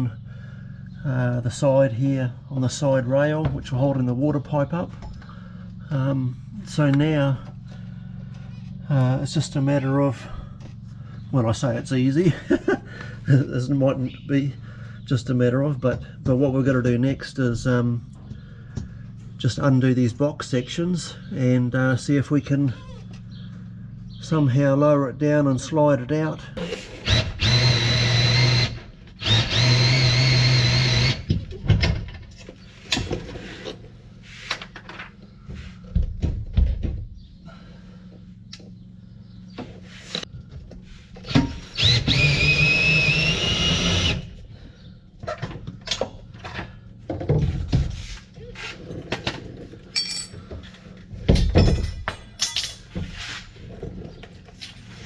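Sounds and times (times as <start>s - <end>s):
power drill whining: 26.6s - 31.4s, 41.3s - 44.4s.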